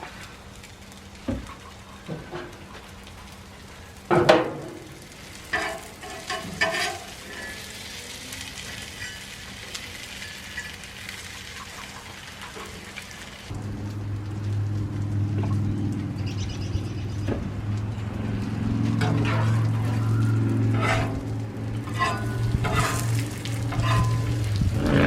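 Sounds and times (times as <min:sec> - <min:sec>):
chicken sizzling on a griddle: 0:00.0 - 0:25.0
low hum: 0:13.5 - 0:25.0.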